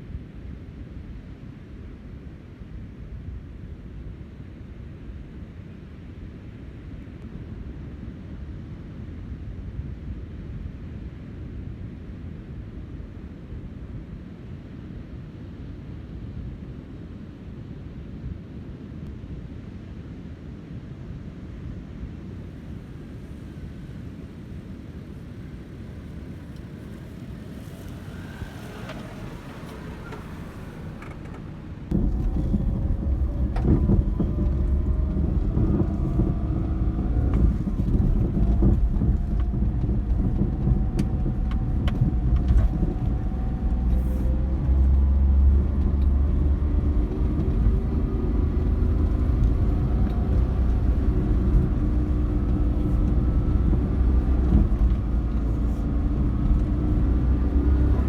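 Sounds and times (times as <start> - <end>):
turbo engine running: 25.6 - 58.0.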